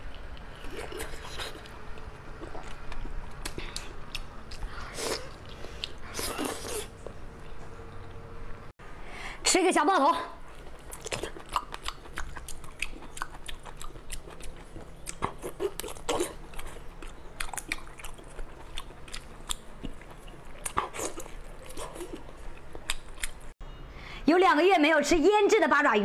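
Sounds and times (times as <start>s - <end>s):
person biting and chewing: 10.6s - 23.4s.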